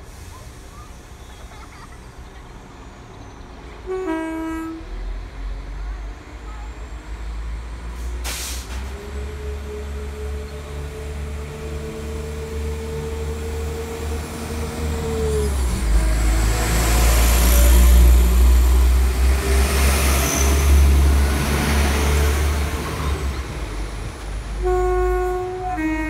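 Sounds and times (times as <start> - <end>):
rumble of engines and wheels: 0.0 - 26.0
train engine whine: 0.0 - 26.0
train horn: 3.8 - 5.0, 24.6 - 26.0.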